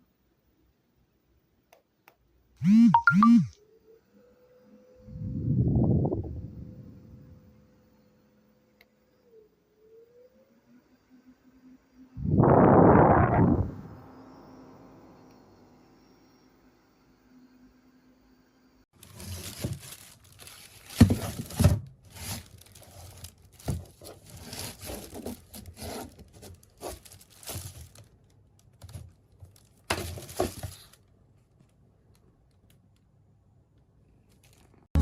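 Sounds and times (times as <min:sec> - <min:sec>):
packaging tearing and crinkling: 0:19.0 - 0:28.2, 0:28.8 - 0:31.0.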